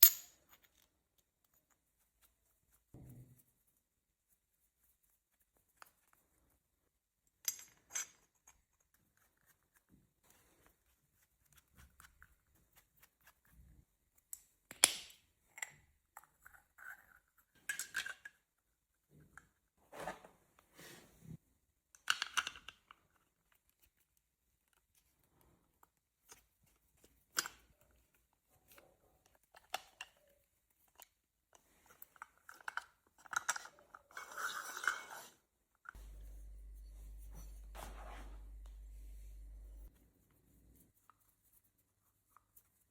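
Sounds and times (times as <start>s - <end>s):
small parts clicking and tapping: 21.9s - 24.0s
parts rustling: 36.0s - 39.9s.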